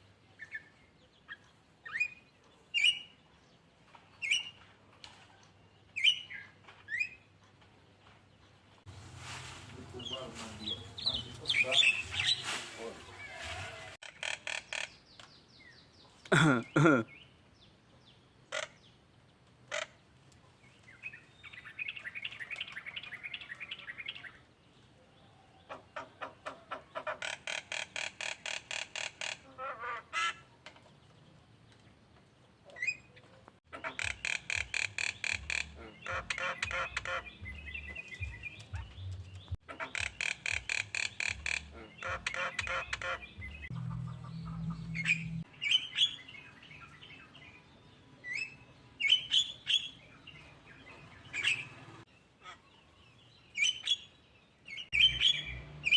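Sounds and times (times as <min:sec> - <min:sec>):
bird harsh chattering: 0:14.0 - 0:15.0, 0:25.7 - 0:29.5, 0:33.7 - 0:39.0, 0:39.6 - 0:46.1
songbird trilling: 0:33.8 - 0:46.5, 0:54.7 - 0:55.9.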